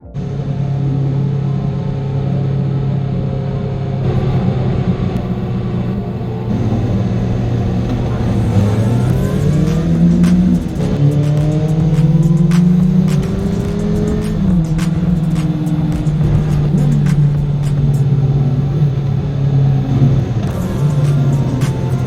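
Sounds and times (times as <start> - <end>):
motorcycle engine accelerating: 4.0 - 22.0.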